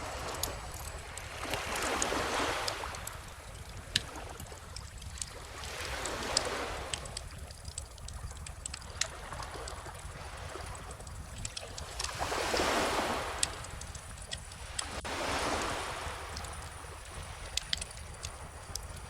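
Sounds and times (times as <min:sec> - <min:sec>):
bonfire crackling: 0:00.0 - 0:19.0
ocean waves washing in: 0:08.4 - 0:19.0.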